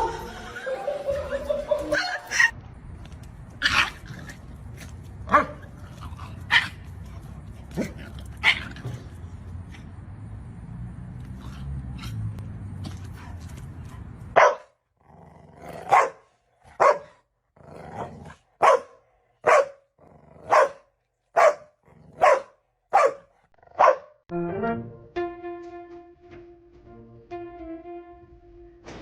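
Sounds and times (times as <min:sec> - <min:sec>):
music: 0:00.0 - 0:02.3, 0:24.3 - 0:29.0
dog barking: 0:05.3 - 0:05.6, 0:14.4 - 0:14.8, 0:15.8 - 0:17.2, 0:18.6 - 0:24.2.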